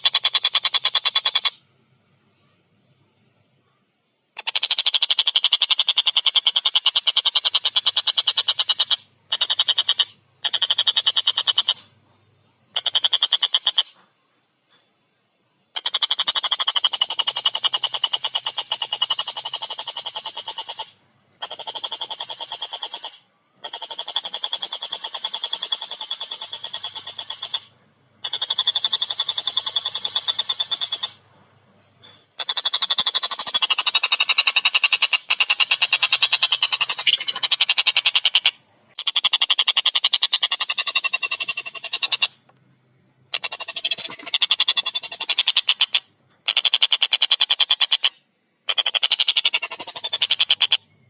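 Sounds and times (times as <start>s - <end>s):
kingfisher rattling call: 15.8s - 31.2s, 32.4s - 42.4s, 43.3s - 50.8s.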